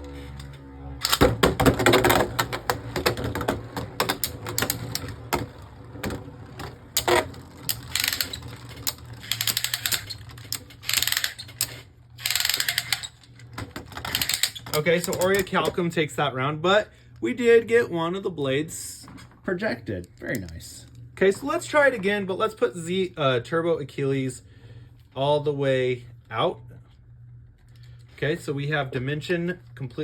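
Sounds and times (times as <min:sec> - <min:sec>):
spinning tops clattering: 0:07.0 - 0:13.2.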